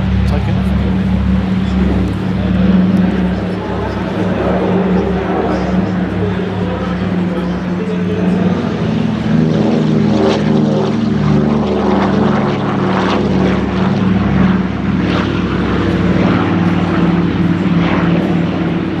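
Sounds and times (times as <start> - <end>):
aircraft radial engines droning: 0.0 - 19.0.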